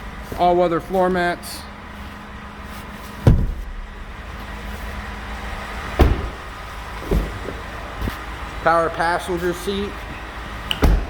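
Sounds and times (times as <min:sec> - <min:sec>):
steady low hum: 0:00.0 - 0:11.0
dull thumps: 0:02.8 - 0:08.3, 0:10.4 - 0:11.0.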